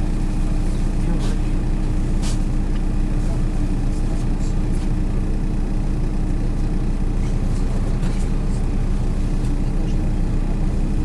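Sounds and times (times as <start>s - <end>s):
bus engine drone: 0.0s - 11.0s
road hum: 0.0s - 11.0s.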